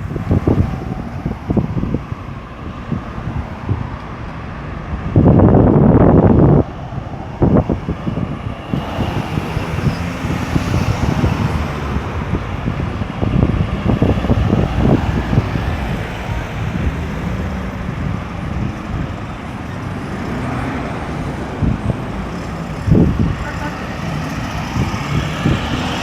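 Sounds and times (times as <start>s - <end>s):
tyres on road: 0.0s - 26.0s
vehicles passing: 0.0s - 26.0s.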